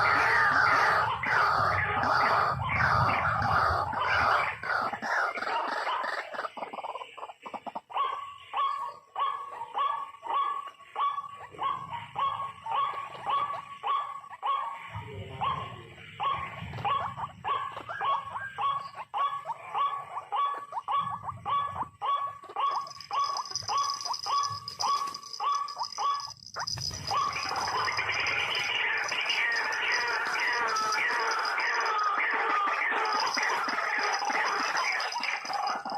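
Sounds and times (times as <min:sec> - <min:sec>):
waterhen calls: 0:07.6 - 0:35.9.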